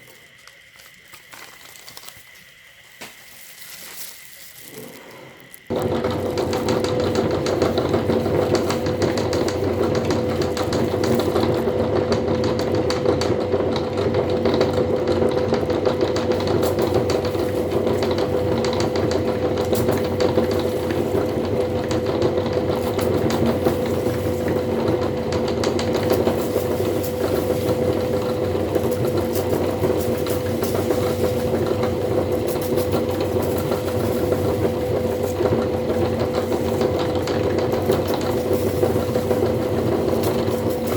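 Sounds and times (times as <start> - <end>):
snack being ground crackle: 0.0 - 6.3
electric meat grinder motor hum: 5.7 - 40.9.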